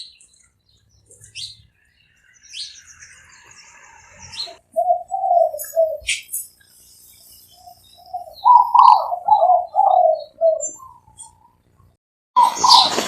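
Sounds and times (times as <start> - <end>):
small birds chirping: 0.0 - 13.0
dove cooing: 4.2 - 6.3, 7.6 - 11.5, 12.4 - 13.0.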